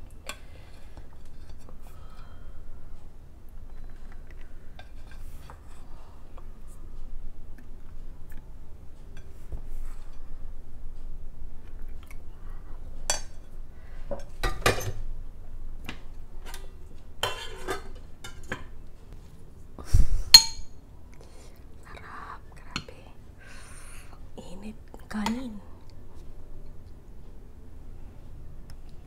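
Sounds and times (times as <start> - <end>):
dishes and utensils clinking: 13.1 - 15.0, 16.4 - 18.7, 20.4 - 20.7.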